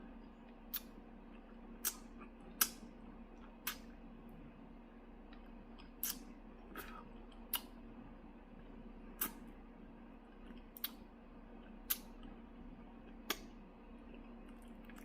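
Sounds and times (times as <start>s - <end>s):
faint steady hum: 0.0s - 15.0s
mouth smacking and sucking: 1.8s - 2.8s, 5.8s - 7.7s, 9.2s - 9.4s.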